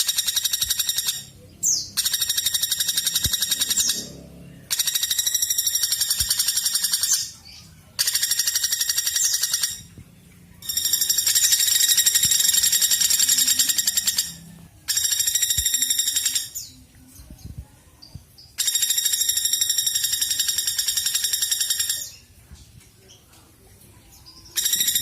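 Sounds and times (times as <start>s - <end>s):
woodpecker rattling trills: 0.0s - 7.4s, 8.0s - 10.0s, 10.6s - 16.7s, 18.6s - 22.2s, 24.5s - 25.0s.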